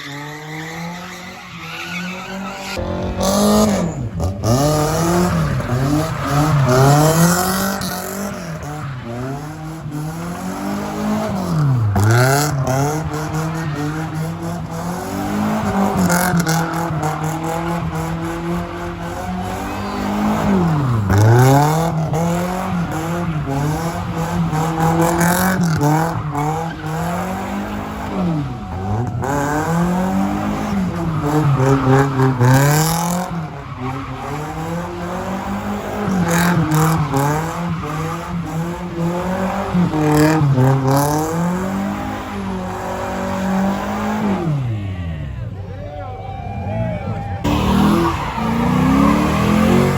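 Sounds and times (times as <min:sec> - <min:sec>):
car engine at high revs: 0:00.0 - 0:45.2, 0:47.4 - 0:49.9
tyres squealing: 0:47.4 - 0:49.9.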